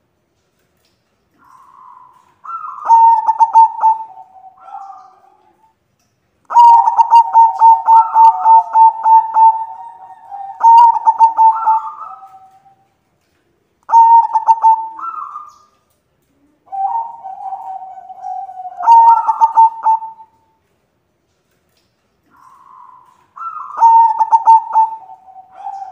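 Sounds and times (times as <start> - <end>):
dove cooing: 1.4 - 5.7, 6.5 - 12.9, 13.9 - 15.7, 16.3 - 20.4, 22.3 - 25.9.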